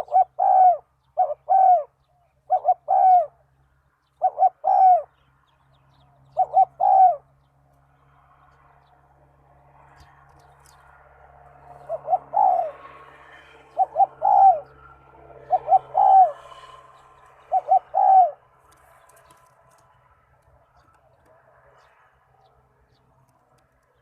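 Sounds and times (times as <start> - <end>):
dove cooing: 0.0 - 3.4, 4.2 - 5.2, 6.3 - 7.3, 11.6 - 19.4.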